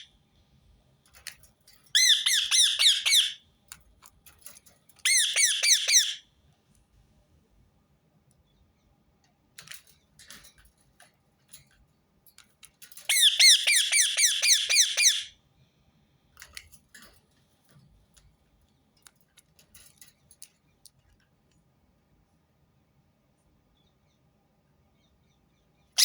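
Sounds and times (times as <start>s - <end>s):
parakeet squawking: 2.0s - 3.4s, 5.1s - 6.2s, 13.1s - 15.3s
faint soft chirps and clicks: 8.2s - 13.4s, 23.4s - 26.0s.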